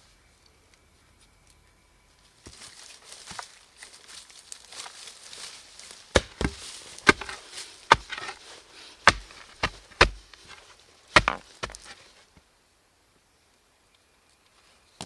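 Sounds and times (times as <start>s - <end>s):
wood being chopped: 6.1s - 8.4s, 9.1s - 12.0s.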